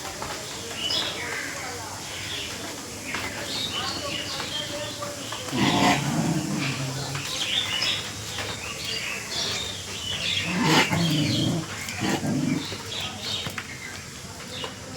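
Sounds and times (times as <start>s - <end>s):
birds chirping: 0.6s - 14.9s.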